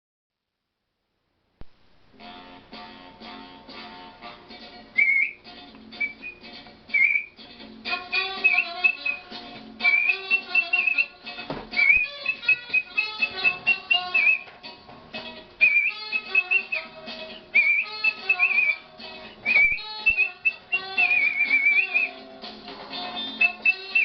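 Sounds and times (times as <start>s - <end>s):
guitar accompaniment: 2.1s - 24.0s
person whistling a melody: 5.0s - 5.4s, 6.0s - 7.4s, 8.2s - 11.2s, 11.8s - 14.5s, 15.6s - 18.8s, 19.4s - 22.3s, 23.1s - 24.0s.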